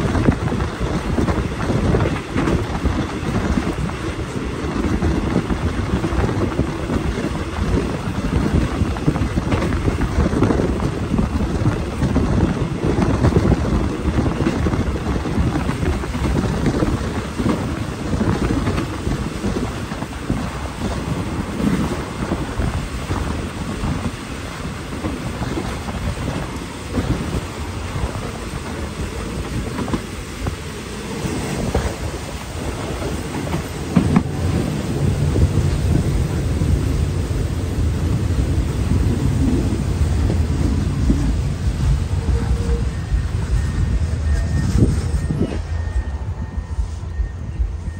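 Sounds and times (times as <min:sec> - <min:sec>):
train wheels rumbling on rails: 0:00.0 - 0:47.9
wind buffeting microphone: 0:00.0 - 0:47.9.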